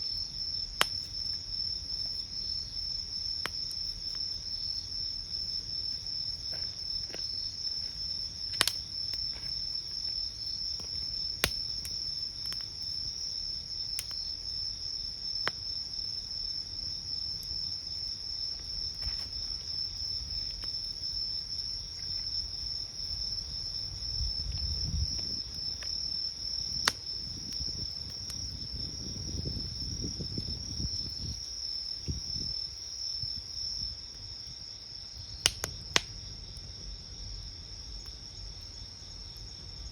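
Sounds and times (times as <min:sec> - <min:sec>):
crickets chirring: 0:00.0 - 0:39.9
campfire crackling: 0:00.1 - 0:39.9.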